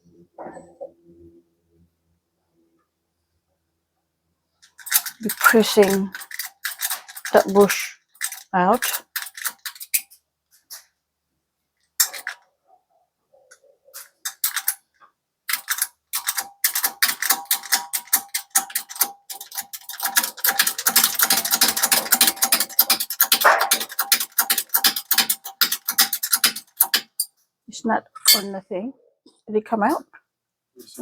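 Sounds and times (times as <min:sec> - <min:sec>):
shop press ratchet clicking: 0:04.6 - 0:10.1, 0:14.3 - 0:14.8, 0:15.5 - 0:27.3.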